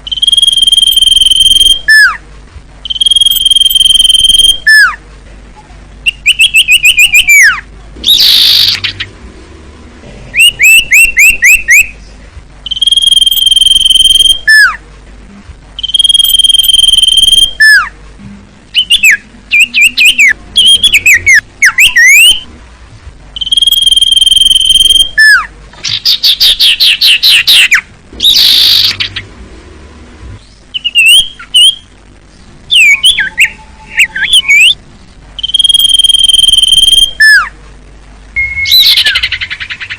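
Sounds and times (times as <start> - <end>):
songbird singing whistles and trills: 0.0 - 2.2, 2.8 - 5.0, 5.6 - 9.1, 10.3 - 14.8, 15.8 - 18.0, 18.7 - 22.5, 23.4 - 29.2, 30.4 - 34.8, 35.4 - 37.5, 38.4 - 39.9.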